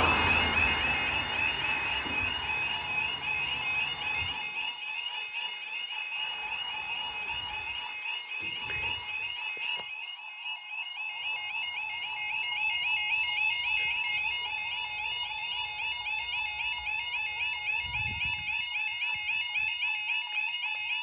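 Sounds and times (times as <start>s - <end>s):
road vehicle rumble: 0.0s - 4.6s
crossing alarm two-tone warble: 0.0s - 21.0s.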